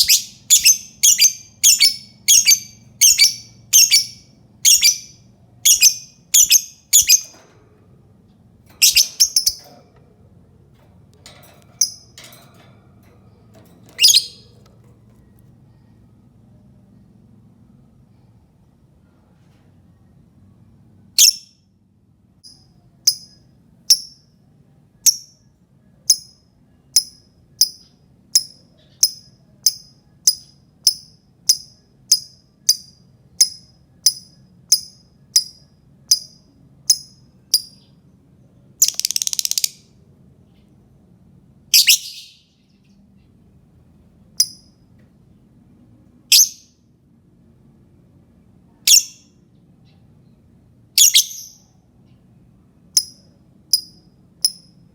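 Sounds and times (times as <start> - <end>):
lovebird chirping: 0.0 - 7.4, 8.8 - 9.6, 13.9 - 14.6, 21.2 - 21.5, 38.8 - 39.8, 41.7 - 42.6, 46.3 - 46.8, 48.9 - 49.3, 51.0 - 51.7.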